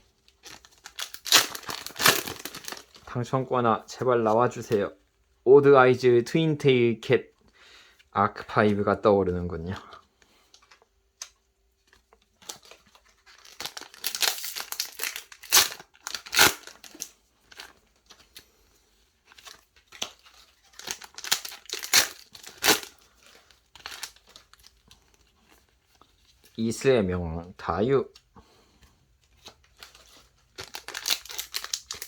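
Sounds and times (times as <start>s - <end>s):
foil wrapper crinkling and tearing: 0.3s - 3.1s, 11.9s - 18.4s, 19.2s - 26.6s, 29.4s - 32.0s.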